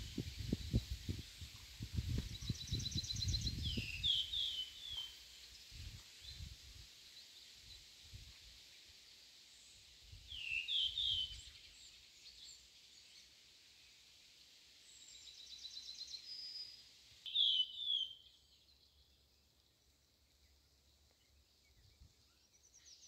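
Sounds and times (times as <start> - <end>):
wind rumble on microphone: 0.0 - 4.4, 5.7 - 6.9
ambient countryside hiss: 0.0 - 23.0
songbird singing: 0.0 - 23.0.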